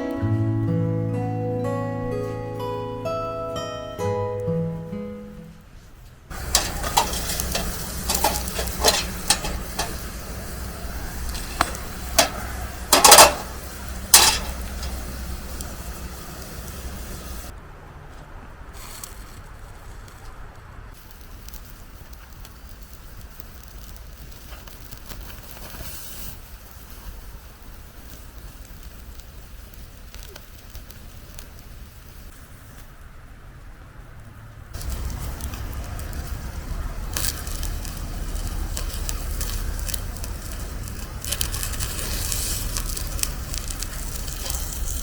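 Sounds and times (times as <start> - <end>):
campfire crackles and pops: 6.3 - 17.6, 20.9 - 33.6, 34.7 - 45.0
sizzling hiss: 6.3 - 17.6, 21.0 - 33.4, 34.7 - 45.0.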